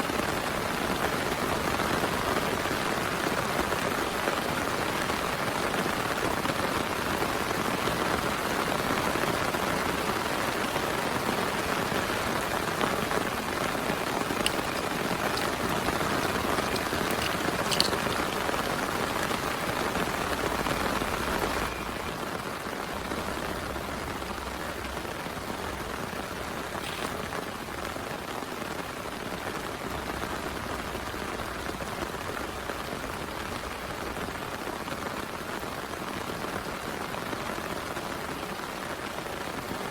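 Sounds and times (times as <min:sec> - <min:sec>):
heavy rain falling: 0:00.0 - 0:39.9
sharp ticks of drops: 0:14.1 - 0:18.8.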